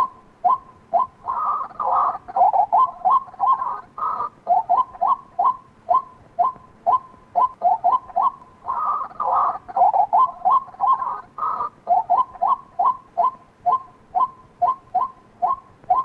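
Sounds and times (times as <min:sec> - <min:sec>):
waterhen calling sharp notes: 0:00.0 - 0:16.0.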